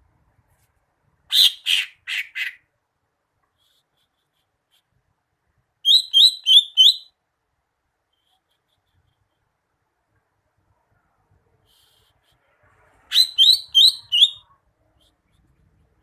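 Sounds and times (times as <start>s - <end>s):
rising whistled bird notes: 13.1s - 14.4s.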